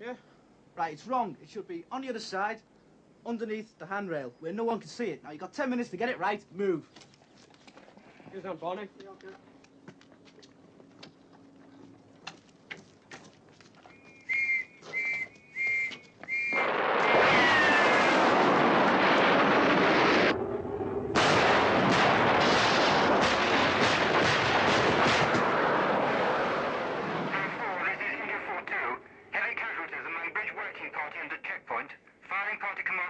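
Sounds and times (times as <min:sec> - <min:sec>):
shrill whistle blasts: 0:13.9 - 0:16.7
loud din of sharp cracks: 0:16.4 - 0:20.4, 0:21.1 - 0:27.6.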